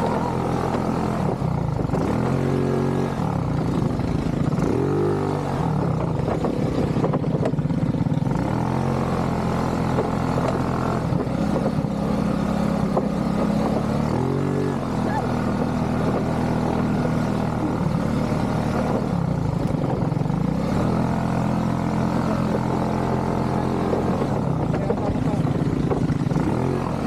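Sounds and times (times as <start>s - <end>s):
atv engine revving: 0.0s - 27.0s.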